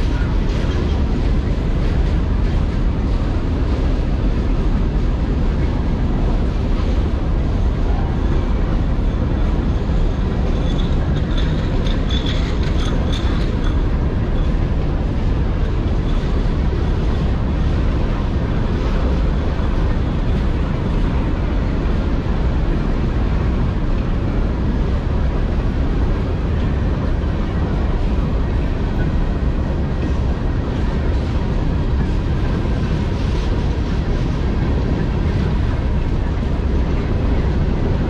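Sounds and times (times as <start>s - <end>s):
steel wheels rumbling on rails: 0.0s - 38.0s.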